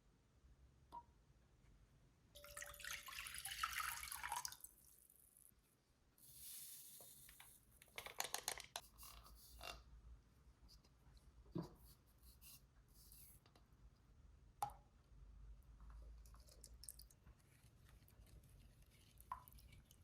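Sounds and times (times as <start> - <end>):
water running: 2.4 - 5.0
water dripping: 2.4 - 5.5, 16.2 - 17.3, 19.0 - 20.0.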